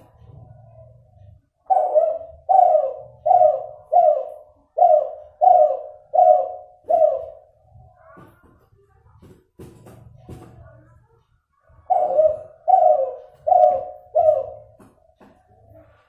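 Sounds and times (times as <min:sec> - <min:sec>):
dove cooing: 0:00.0 - 0:08.3, 0:11.8 - 0:16.0.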